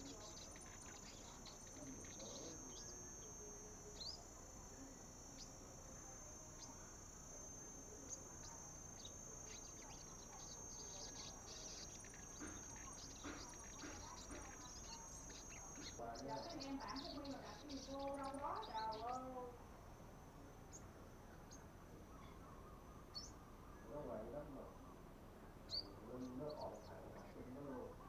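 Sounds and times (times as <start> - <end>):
high-pitched insect drone: 0.0 - 22.2.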